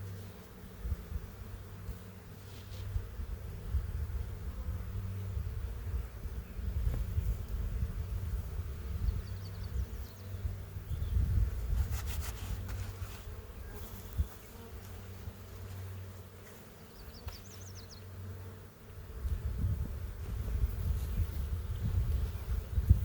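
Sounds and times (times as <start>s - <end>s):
bees buzzing: 0.0s - 11.8s, 12.6s - 23.0s
rustle of handling: 11.6s - 16.6s.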